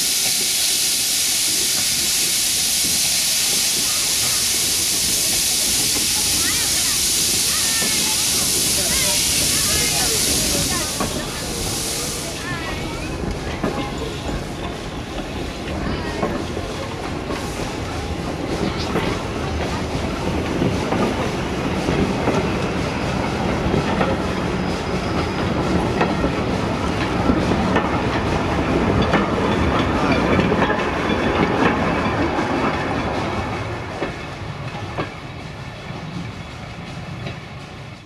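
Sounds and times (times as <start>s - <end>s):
train wheels clicking over rail joints: 0.0s - 38.0s.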